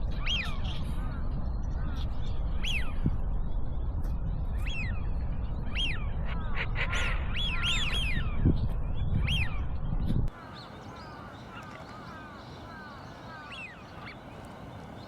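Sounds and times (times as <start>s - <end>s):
low rumble of wind: 0.0s - 15.0s
wild birds calling: 10.3s - 15.0s.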